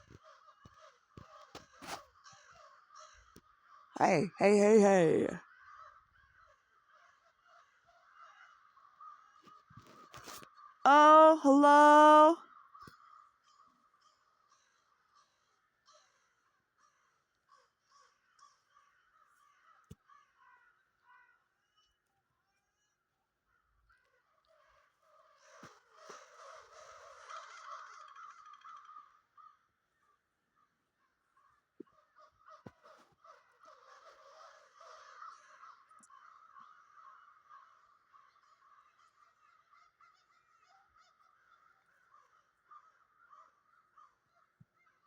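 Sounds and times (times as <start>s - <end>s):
chorus of birds calling: 25.5s - 29.6s, 32.0s - 40.6s.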